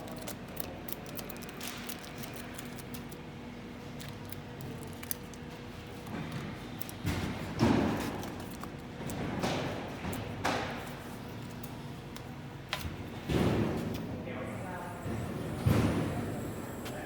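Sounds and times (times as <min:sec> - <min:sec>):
steady low hum: 0:09.8 - 0:17.0.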